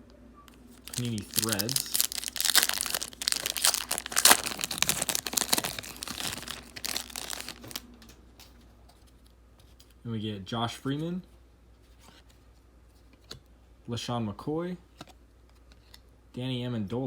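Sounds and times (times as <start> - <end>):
wrapper crinkling and tearing: 0.6 - 7.8.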